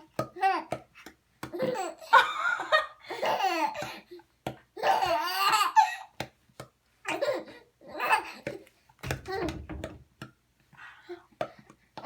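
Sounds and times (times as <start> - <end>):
person laughing heartily: 2.0 - 3.2.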